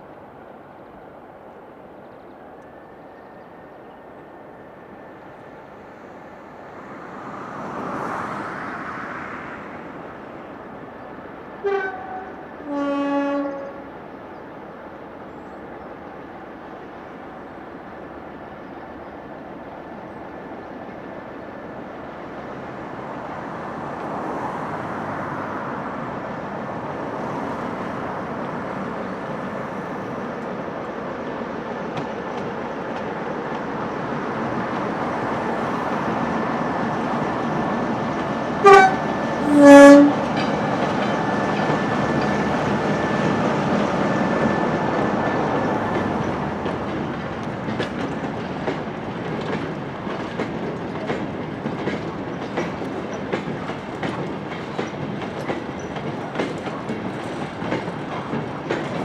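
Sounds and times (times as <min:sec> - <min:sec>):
train rumbling along track: 0:00.0 - 0:59.0
locomotive horn blasts: 0:11.6 - 0:13.9, 0:38.6 - 0:40.3.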